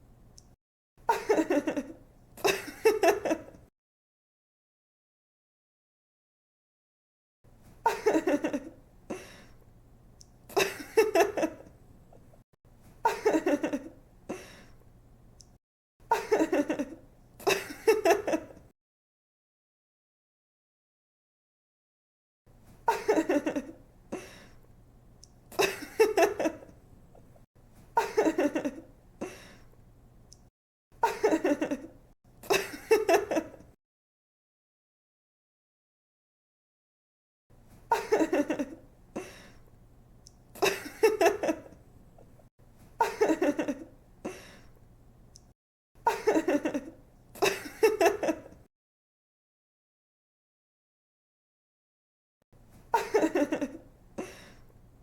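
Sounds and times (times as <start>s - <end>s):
woman giggling: 1.1s - 3.6s, 7.8s - 9.4s, 10.5s - 11.7s, 13.0s - 14.6s, 16.1s - 18.6s, 22.9s - 24.3s, 25.6s - 26.7s, 28.0s - 28.9s, 31.0s - 33.7s, 37.9s - 39.3s, 40.6s - 41.8s, 43.0s - 44.4s, 46.1s - 48.6s, 53.0s - 54.5s
young woman laughing: 1.1s - 3.6s, 7.8s - 9.3s, 10.5s - 11.7s, 13.0s - 14.0s, 16.1s - 18.6s, 22.9s - 23.8s, 25.6s - 26.7s, 28.0s - 28.9s, 31.0s - 33.7s, 37.9s - 39.3s, 40.6s - 41.8s, 43.0s - 43.9s, 46.0s - 48.6s, 52.9s - 54.5s
woman breathing in: 54.2s - 54.7s.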